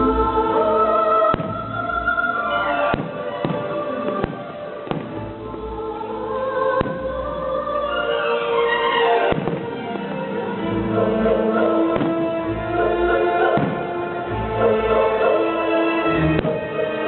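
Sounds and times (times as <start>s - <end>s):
fireworks bursting: 1.2s - 6.1s, 6.7s - 7.3s, 9.2s - 10.2s, 11.3s - 15.4s, 16.4s - 17.0s.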